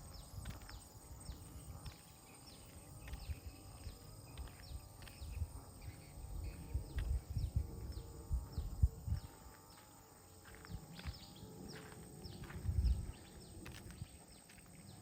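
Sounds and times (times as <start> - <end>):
wind on microphone: 4.6 - 9.5, 10.7 - 14.2.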